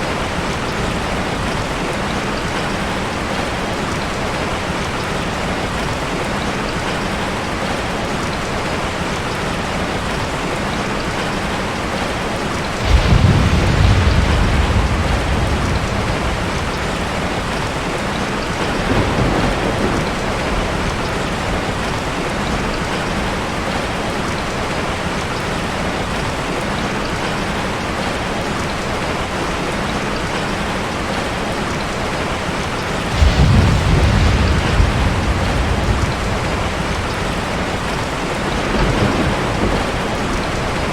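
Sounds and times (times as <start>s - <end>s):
heavy rain: 0.0s - 40.9s
rolling thunder: 12.7s - 24.0s, 33.0s - 40.9s.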